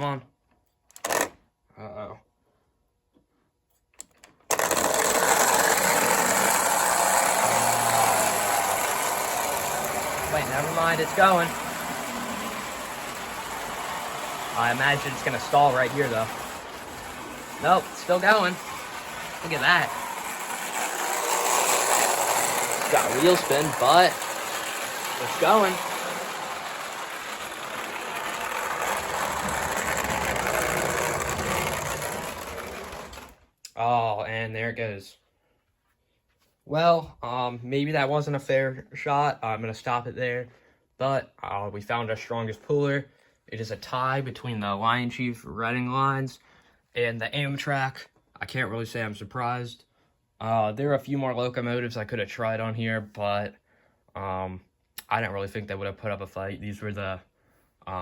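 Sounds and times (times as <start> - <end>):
model locomotive running on track: 4.5 - 33.4.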